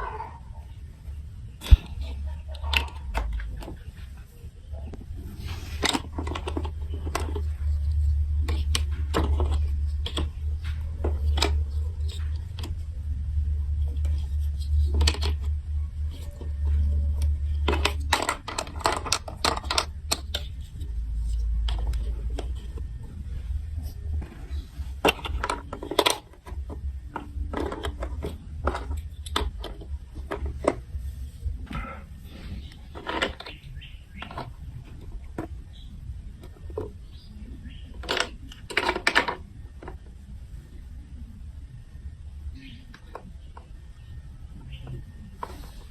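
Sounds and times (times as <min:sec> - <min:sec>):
low rumble: 0:00.0 - 0:38.0
plastic marbles clicking: 0:16.1 - 0:22.9.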